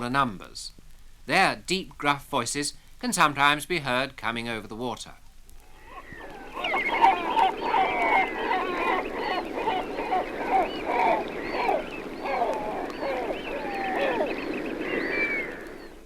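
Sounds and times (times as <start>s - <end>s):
gulls calling gruffly: 5.6s - 16.0s.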